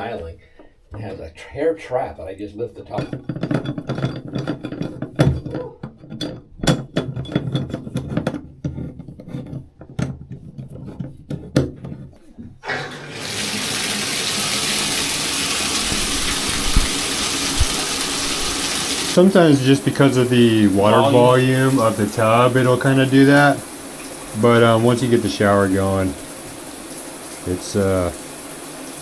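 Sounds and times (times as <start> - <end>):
water gushing into bathtub: 12.6 - 29.0.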